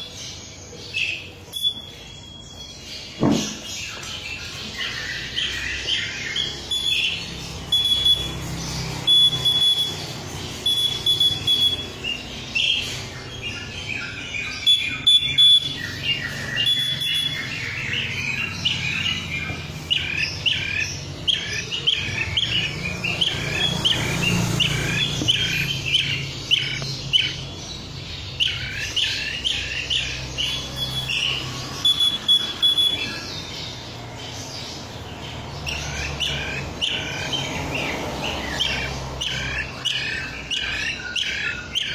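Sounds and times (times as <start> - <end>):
bird chirping and piping: 0.0 - 41.9.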